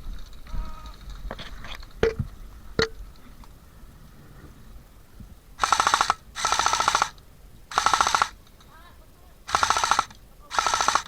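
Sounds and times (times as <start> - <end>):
airsoft gun full-auto bursts: 5.6 - 8.5, 9.4 - 11.0.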